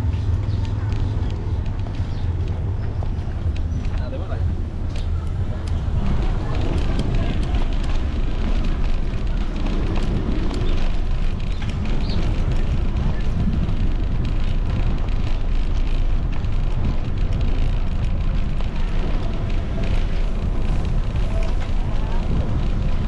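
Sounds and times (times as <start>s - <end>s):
faint voices: 0.0s - 23.0s
wind buffeting microphone: 0.0s - 23.0s.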